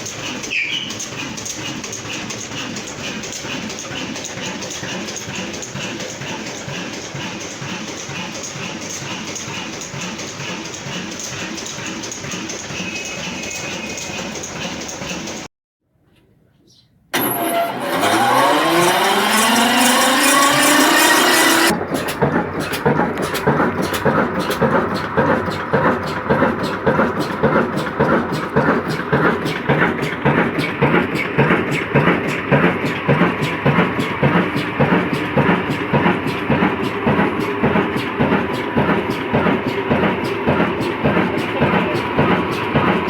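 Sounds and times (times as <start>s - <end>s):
diesel engine running: 0.0s - 15.5s, 17.2s - 43.0s
rising whine: 17.2s - 21.7s.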